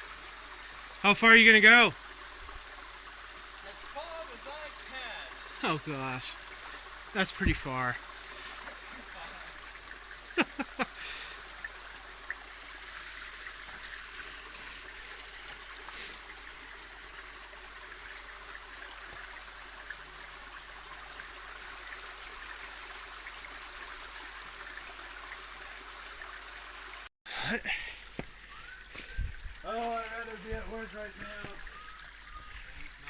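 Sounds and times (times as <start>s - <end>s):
creek water running: 0.0s - 33.0s.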